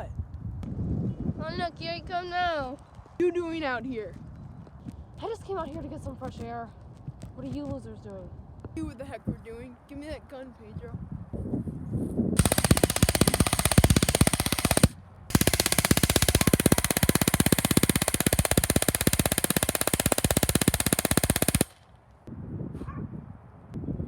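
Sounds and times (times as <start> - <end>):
automatic gunfire: 12.4 - 21.8.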